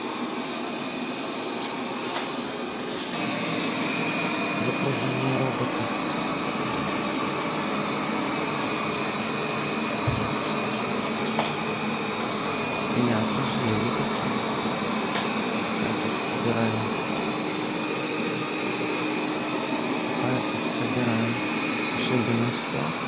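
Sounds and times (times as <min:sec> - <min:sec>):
thin high whine: 0:01.1 - 0:23.0
robot vacuum whirring: 0:02.9 - 0:23.0
low thump: 0:10.0 - 0:10.3.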